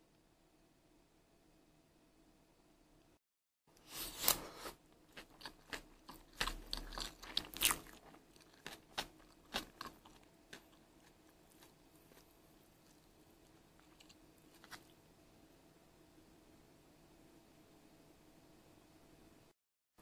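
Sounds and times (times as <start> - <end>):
chewing crunches: 5.1 - 15.0.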